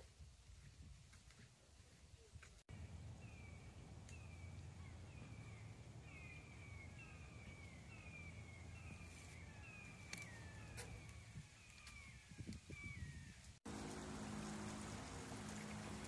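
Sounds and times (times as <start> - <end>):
faint birds calling: 2.7 - 13.5.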